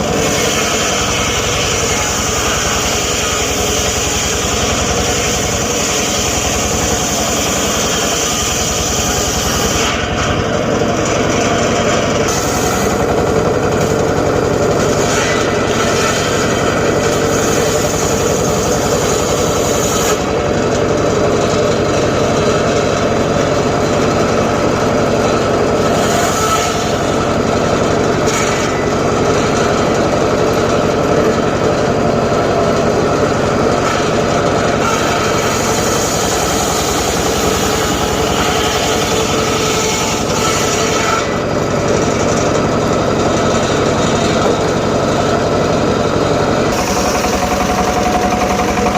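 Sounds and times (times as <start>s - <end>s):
circular saw droning: 34.0s - 48.9s.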